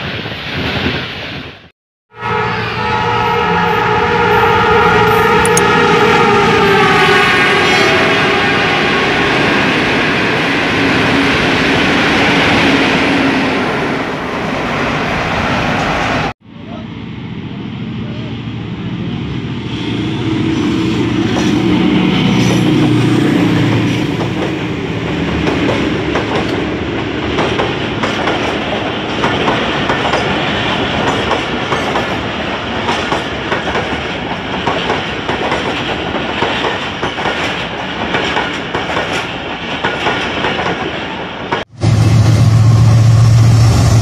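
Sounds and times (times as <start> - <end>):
train wheels clattering: 23.7 - 41.7.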